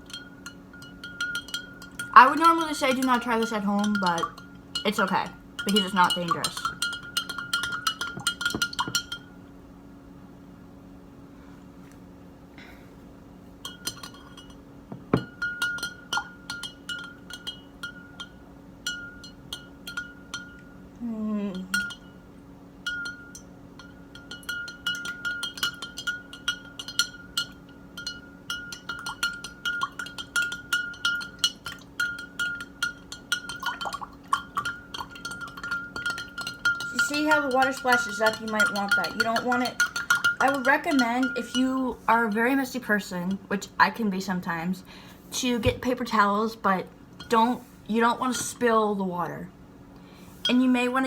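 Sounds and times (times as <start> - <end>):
spoon clinking in a glass: 0.0 - 9.3, 13.6 - 20.7, 21.6 - 22.2, 22.9 - 41.8.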